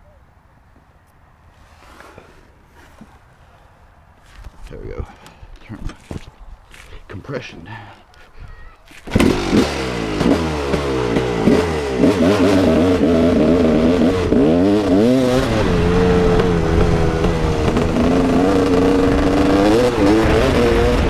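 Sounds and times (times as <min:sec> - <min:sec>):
dirt bike engine revving: 0:09.0 - 0:21.0.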